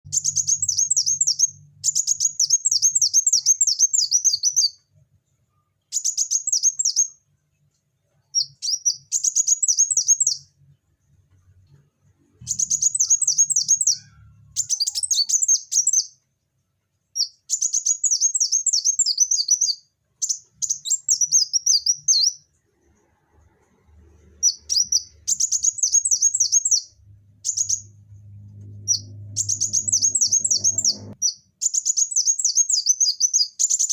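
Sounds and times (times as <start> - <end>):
sunbird twittering: 12.4 - 16.1, 24.4 - 28.0, 28.8 - 33.9.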